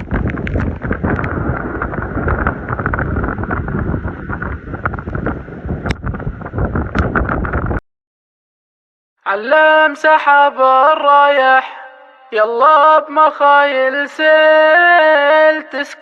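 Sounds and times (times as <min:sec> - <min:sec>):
sharp crackles: 0:00.0 - 0:07.8
wind buffeting microphone: 0:00.0 - 0:07.8.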